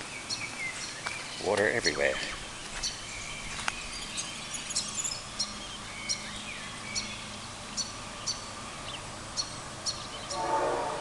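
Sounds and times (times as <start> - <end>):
bird chirping: 0.0 - 10.9
outdoor background hiss: 0.0 - 11.0.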